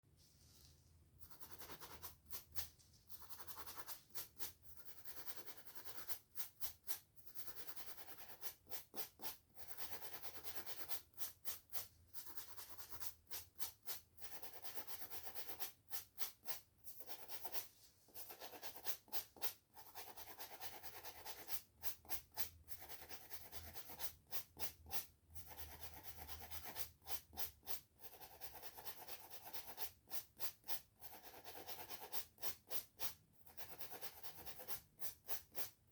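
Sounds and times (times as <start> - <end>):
hair brushing and scratching: 0.2 - 4.6, 16.0 - 19.4.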